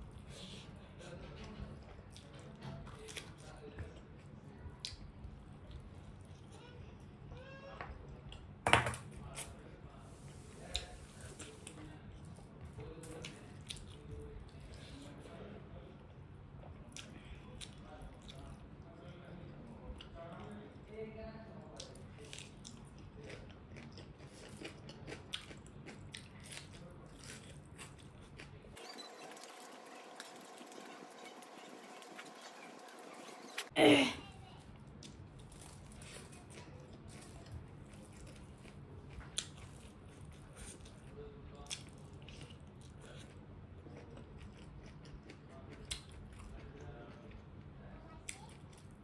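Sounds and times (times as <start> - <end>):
person chewing crunchy onion: 21.8 - 33.8, 35.0 - 47.4.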